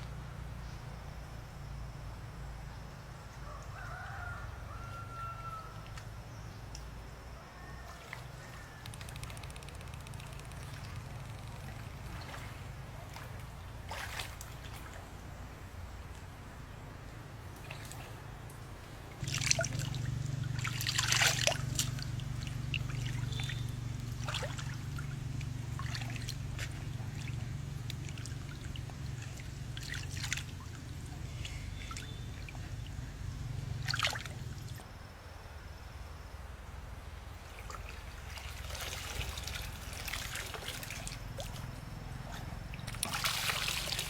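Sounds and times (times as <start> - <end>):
steady low hum: 8.2 - 44.0
water trickling and splashing: 10.5 - 15.2, 17.5 - 33.0, 33.8 - 34.8, 37.4 - 44.0.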